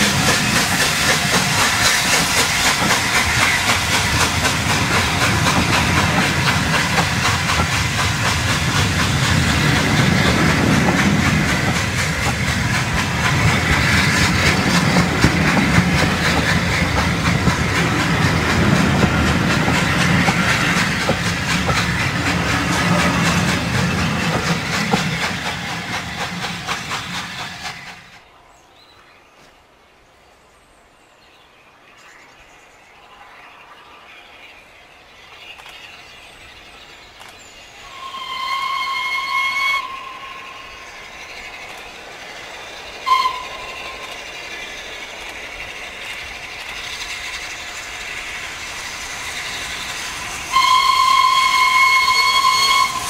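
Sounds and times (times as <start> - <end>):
wheels clattering on rail: 0.0 - 28.1
steam locomotive hiss: 0.0 - 28.3, 31.8 - 53.0.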